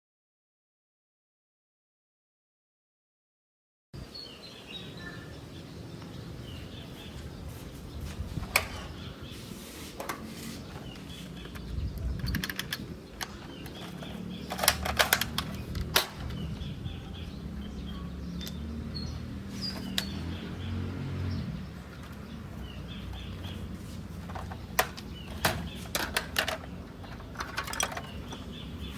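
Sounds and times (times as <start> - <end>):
small birds chirping: 4.0 - 28.9
rifle parts clicking: 11.4 - 16.4, 24.2 - 28.4.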